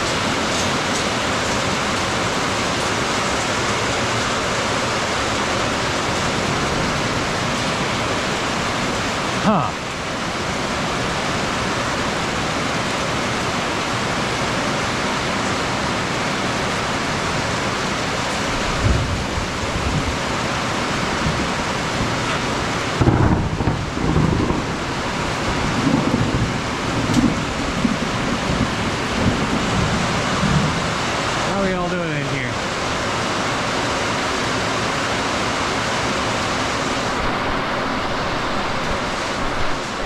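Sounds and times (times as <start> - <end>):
heavy rain: 0.0 - 40.0
thunder rumbles: 18.4 - 31.6.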